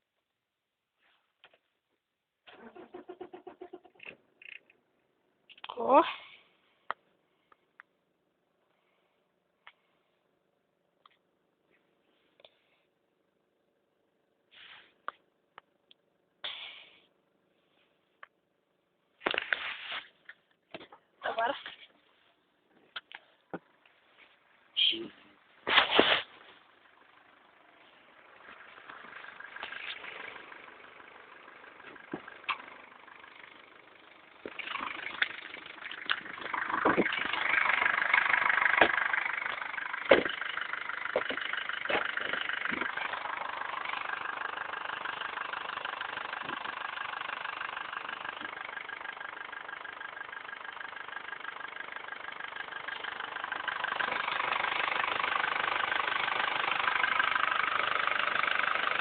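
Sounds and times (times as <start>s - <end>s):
diesel engine starting and idling: 0.7s - 59.0s
sharp engine knocks: 38.8s - 39.0s, 40.0s - 40.4s.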